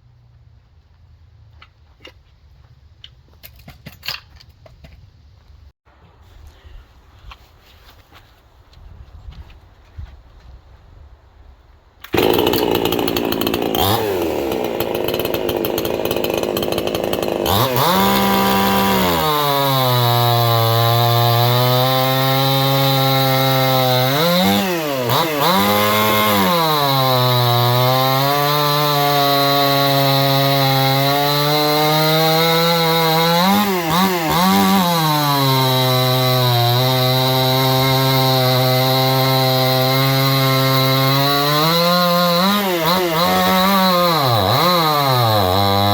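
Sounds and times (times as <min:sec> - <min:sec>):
chainsaw cutting wood: 0:12.0 - 0:45.9.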